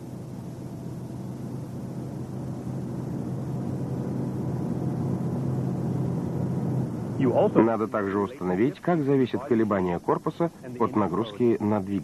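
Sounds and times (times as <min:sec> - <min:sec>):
car road and drivetrain noise: 0:02.6 - 0:07.6.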